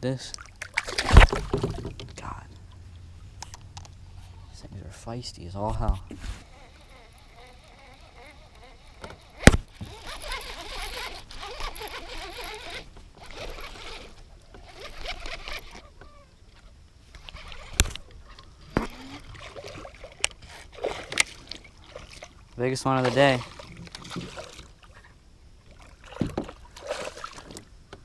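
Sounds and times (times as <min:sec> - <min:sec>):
water splashing: 0:00.2 - 0:03.4, 0:17.2 - 0:27.7
knocks on a kayak: 0:01.1 - 0:02.2.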